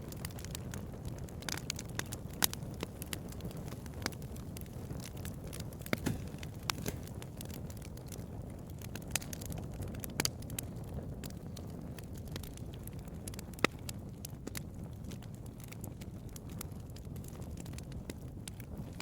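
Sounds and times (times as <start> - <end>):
bonfire rumbling: 0.0 - 19.0
fire popping and snapping: 0.0 - 19.0.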